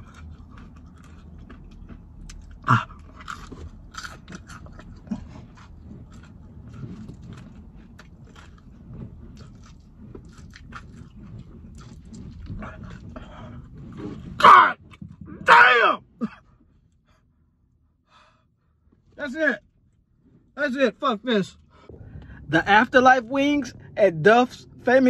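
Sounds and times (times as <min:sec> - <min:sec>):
person chewing chicken wing: 0:00.0 - 0:14.3.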